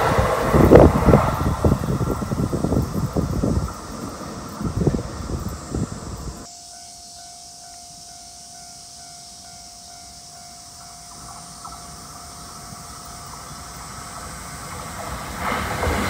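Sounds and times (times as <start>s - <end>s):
wind gust on microphone: 0.0s - 6.5s
train approaching: 0.0s - 16.0s
steady ringing tone: 3.7s - 14.1s.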